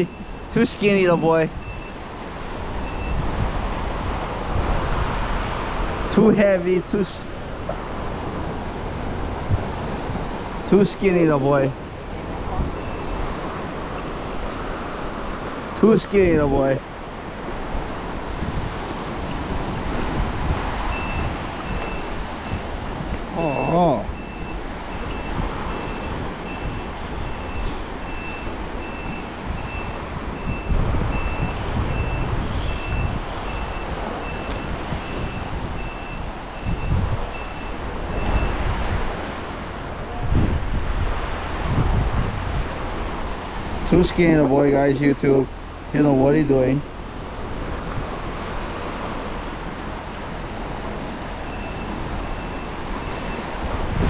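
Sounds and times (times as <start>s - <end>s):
ocean surf on rocks: 0.0s - 54.0s
wind: 0.0s - 54.0s
high electronic beeps: 2.8s - 3.2s, 23.3s - 38.6s, 51.5s - 53.5s.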